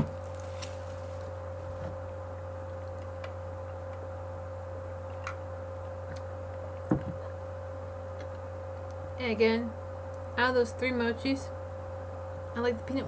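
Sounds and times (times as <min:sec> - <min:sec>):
steady low hum: 0:00.0 - 0:13.0
soft knock: 0:06.9 - 0:07.2.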